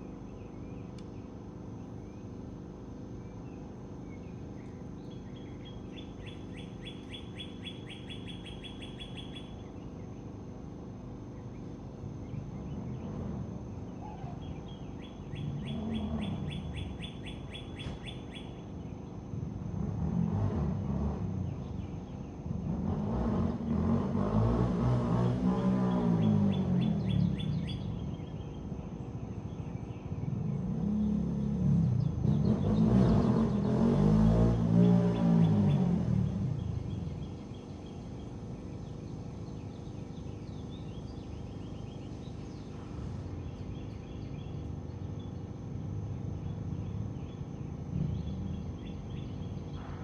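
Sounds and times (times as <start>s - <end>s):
low background hum: 0.0s - 50.0s
bird trilling: 5.4s - 9.6s, 14.0s - 18.6s
vehicle engine passing: 19.5s - 28.4s, 30.2s - 39.6s, 45.4s - 50.0s.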